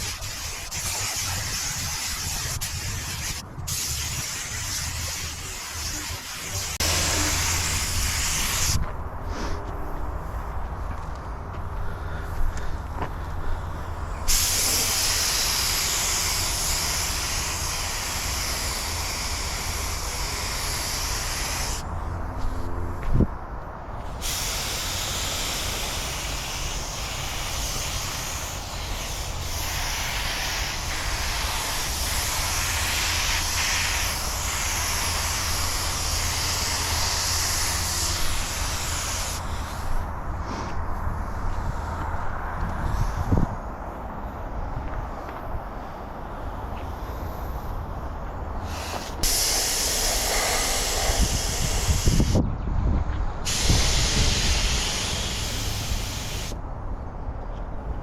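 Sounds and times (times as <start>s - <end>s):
pressurised jet hissing: 0.0s - 9.6s, 14.2s - 21.9s, 24.0s - 40.7s, 48.6s - 52.4s, 53.4s - 56.6s.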